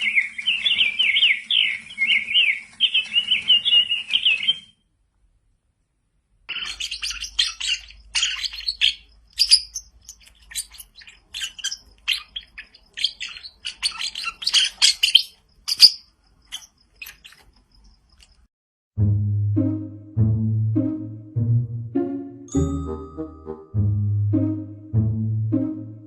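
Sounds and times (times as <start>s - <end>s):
parrot chirping and squeaking: 6.5s - 17.6s.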